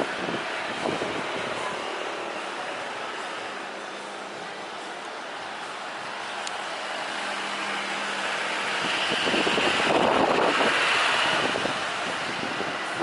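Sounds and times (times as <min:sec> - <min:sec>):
wind buffeting microphone: 0:00.0 - 0:02.4, 0:08.3 - 0:13.0
jet airliner engine noise: 0:00.0 - 0:13.0.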